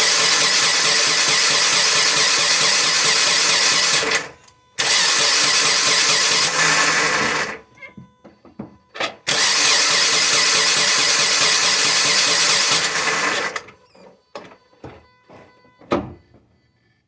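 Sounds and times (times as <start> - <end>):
car engine cranking: 0.0 - 7.6, 9.3 - 13.8.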